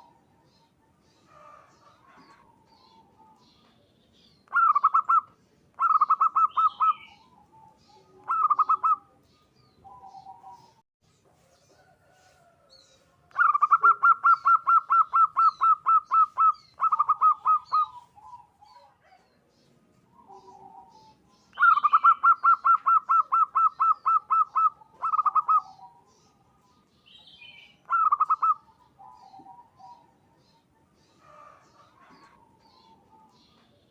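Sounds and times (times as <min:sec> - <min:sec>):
dove cooing: 0:04.4 - 0:10.8, 0:13.3 - 0:19.4, 0:20.1 - 0:26.8, 0:27.7 - 0:33.7.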